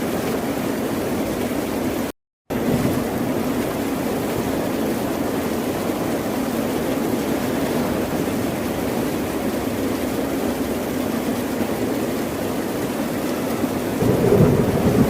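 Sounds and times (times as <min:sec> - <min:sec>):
ocean surf roaring: 0:02.5 - 0:12.4, 0:13.0 - 0:15.0.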